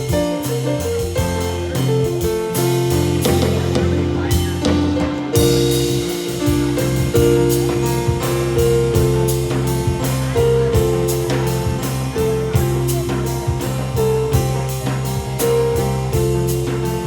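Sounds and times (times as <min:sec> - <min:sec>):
drum kit: 0:00.0 - 0:17.0
electric bass line: 0:00.0 - 0:17.0
keyboard melody: 0:00.0 - 0:17.0.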